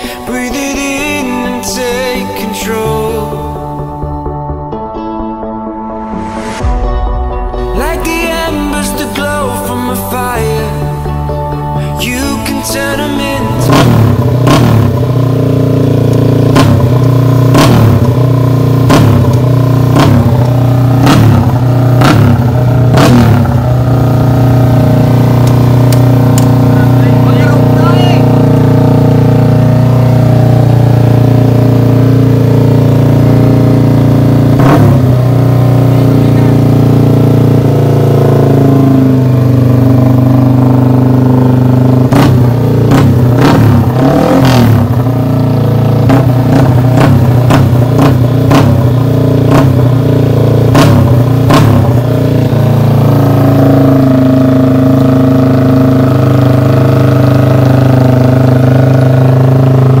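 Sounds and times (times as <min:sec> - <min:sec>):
motorcycle engine running: 0:00.0 - 0:04.8, 0:07.5 - 1:00.0
sharp exhaust cracks: 0:13.6 - 1:00.0.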